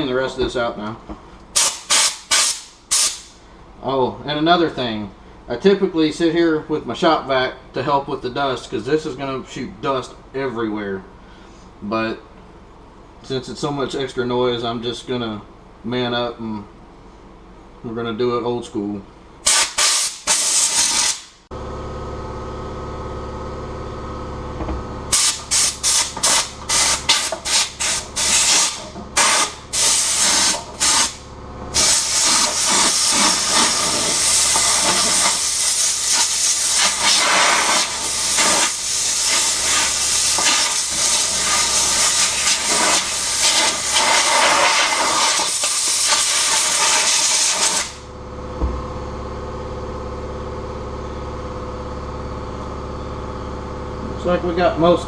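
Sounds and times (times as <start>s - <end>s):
compressed air blowgun blasts: 1.6s - 3.3s, 19.4s - 21.3s, 25.1s - 31.2s, 31.8s - 48.0s.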